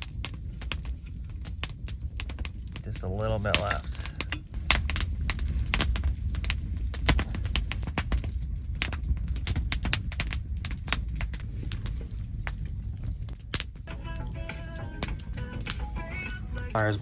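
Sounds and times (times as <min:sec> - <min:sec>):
campfire crackling and snapping: 0:00.0 - 0:17.0.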